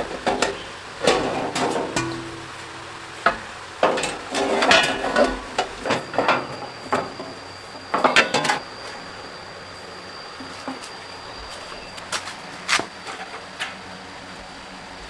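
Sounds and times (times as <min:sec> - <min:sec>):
metal tools clanking and scraping: 0:00.0 - 0:09.2, 0:10.4 - 0:11.9.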